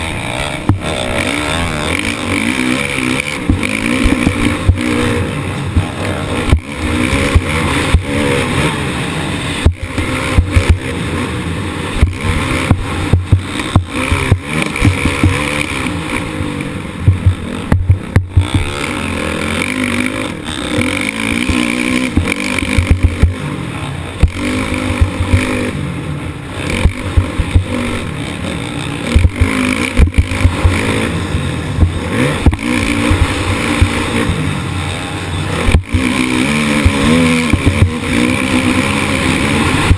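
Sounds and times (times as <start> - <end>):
motocross bike engine revving: 0.0 - 39.9
bike knocks and thumps: 3.4 - 4.9, 12.0 - 15.6, 17.1 - 18.8.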